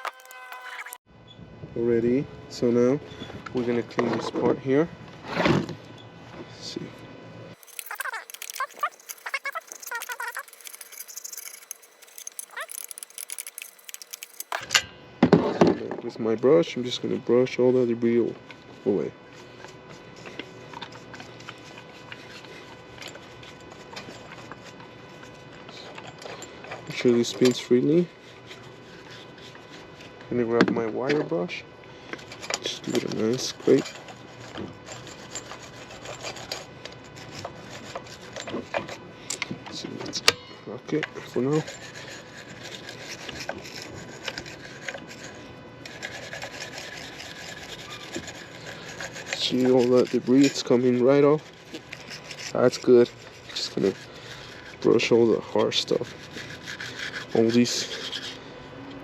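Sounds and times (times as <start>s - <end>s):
brush scrubbing: 7.6s - 14.6s, 41.4s - 58.4s.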